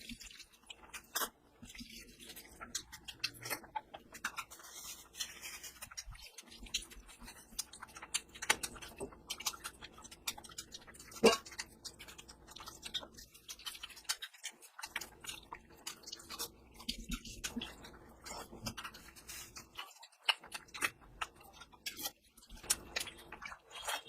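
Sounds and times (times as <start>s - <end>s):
close chewing with wet clicks: 0.0s - 24.0s.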